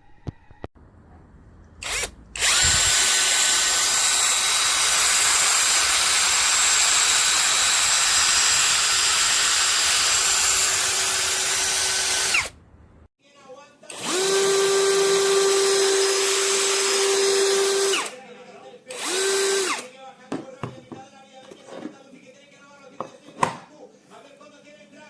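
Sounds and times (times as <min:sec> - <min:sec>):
cordless drill running: 0:01.8 - 0:12.5, 0:13.9 - 0:18.1, 0:18.9 - 0:19.8.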